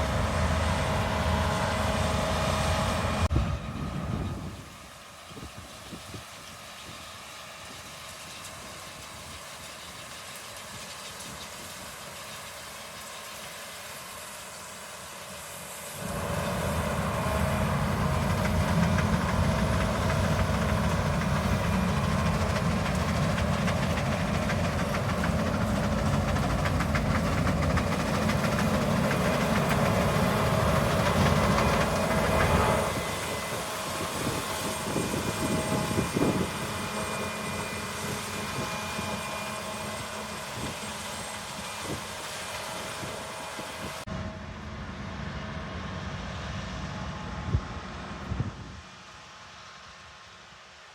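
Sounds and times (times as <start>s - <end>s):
machinery engine rumbling: 0.0s - 5.2s, 15.5s - 48.6s.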